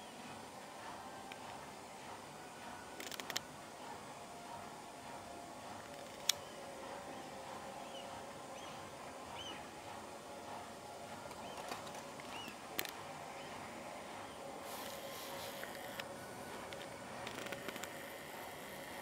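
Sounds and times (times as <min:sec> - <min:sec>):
steady low hum: 0:00.0 - 0:19.0
sharp clicks: 0:05.9 - 0:06.4
small birds chirping: 0:06.3 - 0:09.7, 0:11.4 - 0:12.6.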